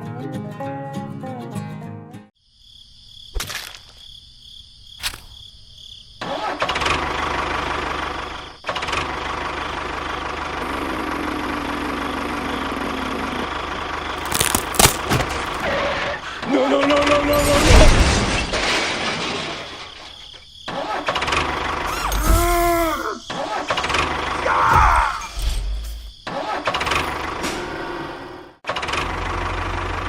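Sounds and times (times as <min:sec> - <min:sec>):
engine starting and running: 0:06.5 - 0:14.5, 0:28.7 - 0:30.0.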